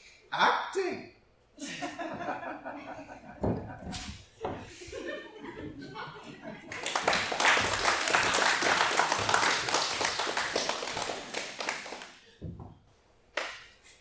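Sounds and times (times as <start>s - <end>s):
audience applauding: 6.7s - 12.2s.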